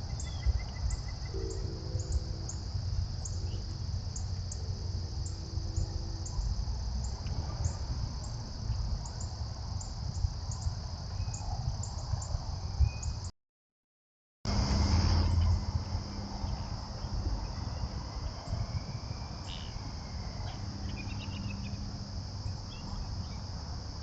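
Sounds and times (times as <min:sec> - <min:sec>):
faint low hums: 0:00.0 - 0:13.1
crickets trilling: 0:00.0 - 0:13.3, 0:14.5 - 0:24.0.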